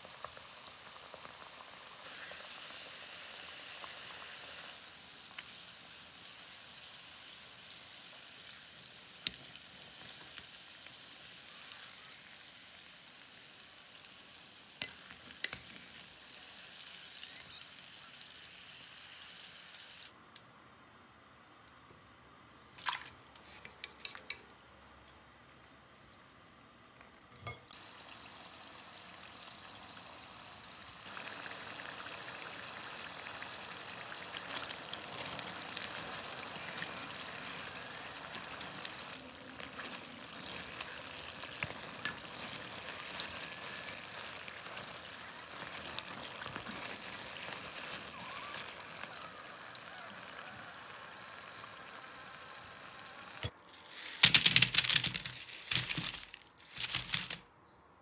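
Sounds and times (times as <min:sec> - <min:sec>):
potatoes deep-frying in oil: 0:00.0 - 0:57.4
fried potatoes rattling onto paper: 0:53.7 - 0:57.4.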